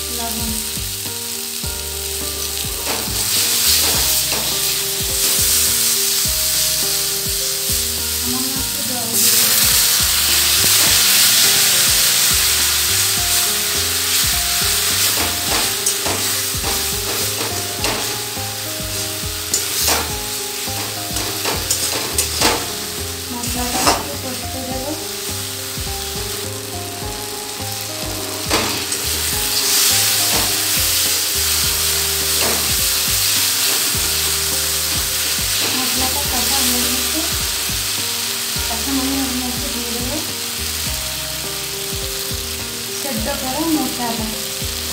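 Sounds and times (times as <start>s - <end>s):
masala sizzling in hot oil: 0.0s - 44.9s
metal spatula scraping and tapping pan: 14.9s - 18.2s, 19.0s - 22.8s.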